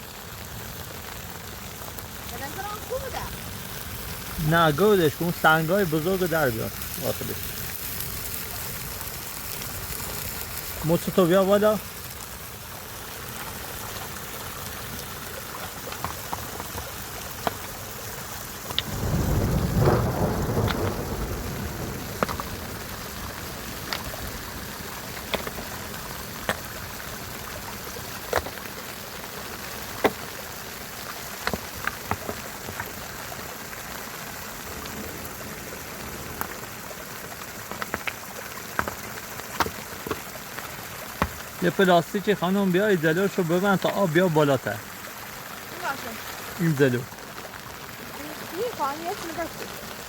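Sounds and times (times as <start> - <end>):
low rush of water: 0.0 - 50.0
river rushing: 2.1 - 50.0
stones knocking together: 15.4 - 17.8, 18.6 - 19.0, 22.1 - 22.7, 23.8 - 24.2, 25.0 - 26.8, 28.2 - 28.7, 29.9 - 30.4, 31.3 - 33.0, 37.7 - 42.2, 43.2 - 44.2.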